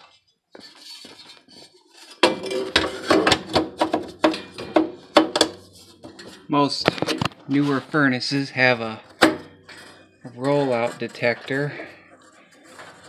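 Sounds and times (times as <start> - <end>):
metallic clanks and rattles: 2.0 - 13.0
faint metal scrape: 5.5 - 13.0.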